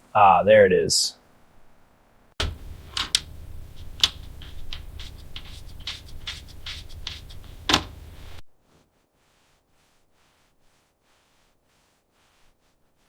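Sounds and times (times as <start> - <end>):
low steady hum: 1.9 - 8.4.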